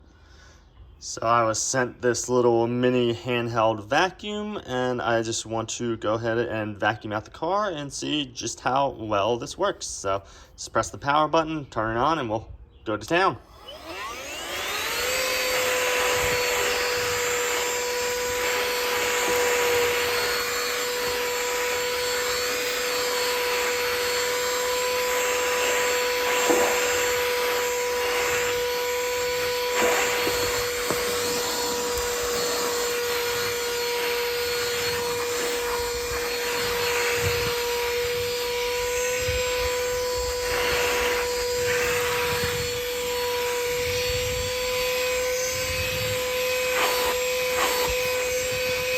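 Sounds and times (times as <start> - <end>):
handheld vacuum motor whining: 13.4 - 48.9.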